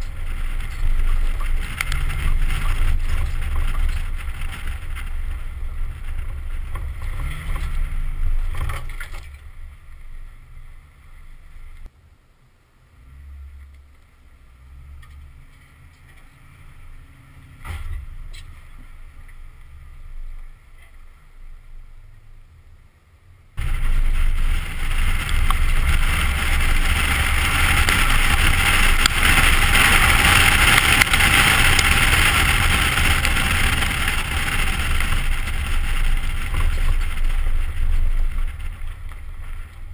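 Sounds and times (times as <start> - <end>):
truck engine and tyre noise: 0.0 - 39.9.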